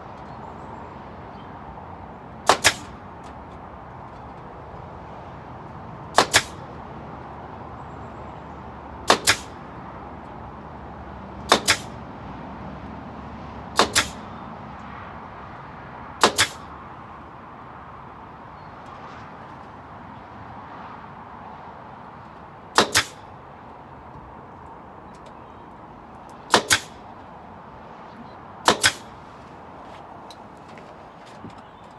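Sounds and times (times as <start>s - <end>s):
nail gun firing into wood: 2.4s - 3.4s, 6.1s - 6.7s, 9.0s - 9.7s, 11.4s - 12.0s, 13.8s - 14.3s, 16.2s - 16.7s, 22.8s - 23.3s, 26.3s - 27.2s, 28.6s - 29.3s.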